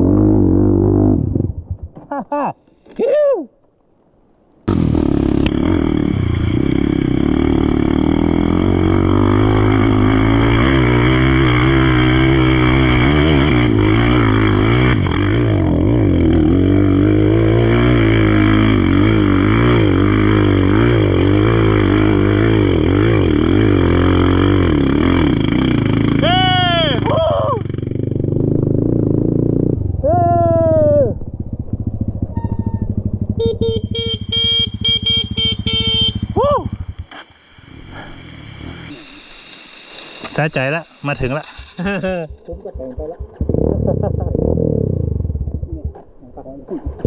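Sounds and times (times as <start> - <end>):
off-road vehicle engine revving: 4.7 - 30.0, 42.8 - 45.8.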